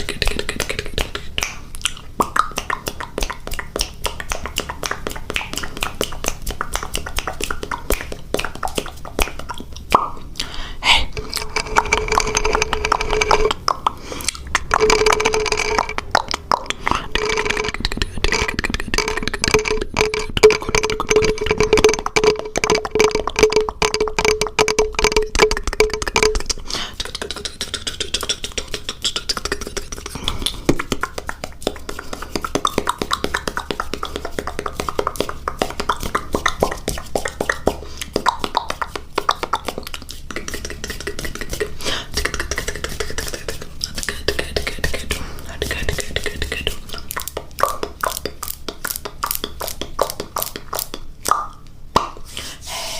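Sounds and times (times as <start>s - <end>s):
wet mouth clicks and pops: 0.0s - 52.5s
steady tone: 10.8s - 27.2s.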